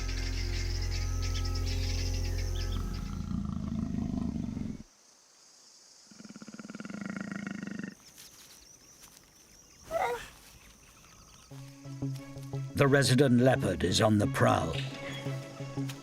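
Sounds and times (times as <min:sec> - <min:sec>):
leopard growling: 0:02.7 - 0:04.9, 0:06.1 - 0:08.0, 0:09.9 - 0:10.4
high-pitched animal call: 0:09.9 - 0:10.3.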